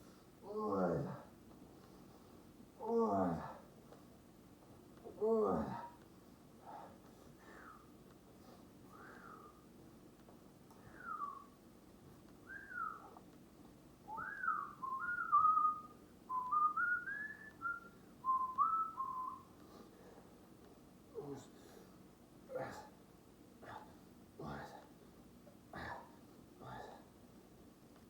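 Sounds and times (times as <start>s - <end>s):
person whistling a tune: 10.9s - 11.5s, 12.5s - 13.2s, 14.1s - 19.5s.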